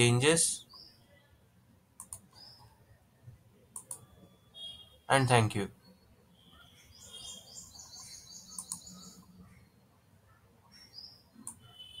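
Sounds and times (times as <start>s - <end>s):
faint bird chirping: 0.0s - 12.0s
sharp clicks: 2.0s - 2.4s, 3.7s - 4.1s, 8.6s - 8.9s, 11.4s - 11.6s.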